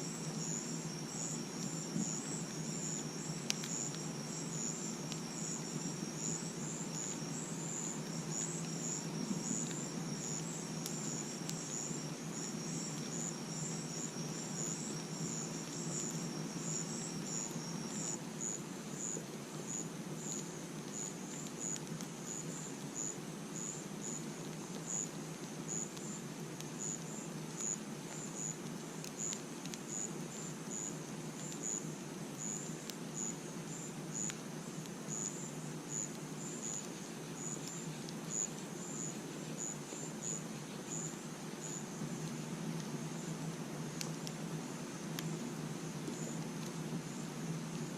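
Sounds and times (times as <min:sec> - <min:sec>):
insect high trill: 0:00.0 - 0:18.6
crickets chirping: 0:00.0 - 0:47.9
faint clicks: 0:02.9 - 0:04.3, 0:43.9 - 0:44.4.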